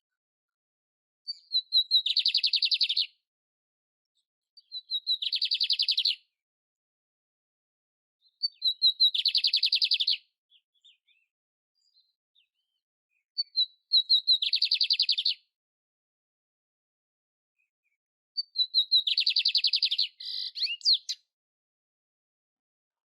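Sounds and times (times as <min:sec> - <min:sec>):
songbird singing with fast trills: 0:01.3 - 0:03.2, 0:04.6 - 0:06.4, 0:08.2 - 0:15.5, 0:17.6 - 0:21.3.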